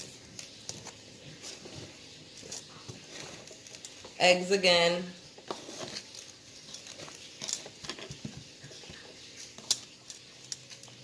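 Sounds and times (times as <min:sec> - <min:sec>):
wet patter in egg bowl: 0:05.2 - 0:11.0.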